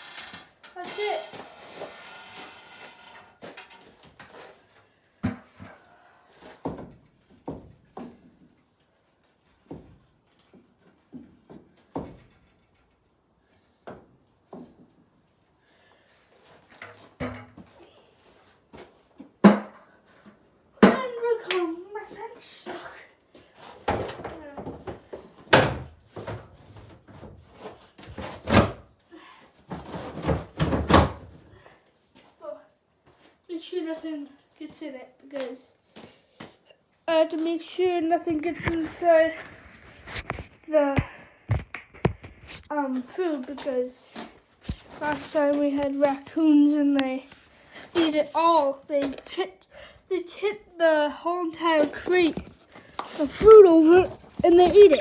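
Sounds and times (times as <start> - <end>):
irregular knocks and thumps: 38.3 - 42.7, 53.2 - 55.0.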